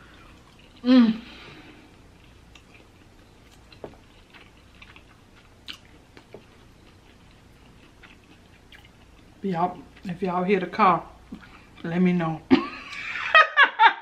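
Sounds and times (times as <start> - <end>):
person quietly chewing: 0.0 - 10.2, 11.2 - 12.0.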